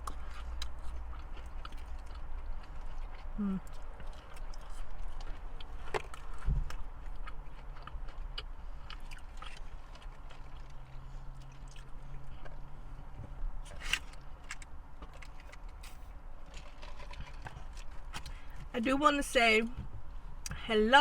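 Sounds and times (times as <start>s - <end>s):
person chewing food: 0.0s - 18.7s
faint low hum: 0.0s - 21.0s
sharp clicks and crunches: 13.6s - 18.4s.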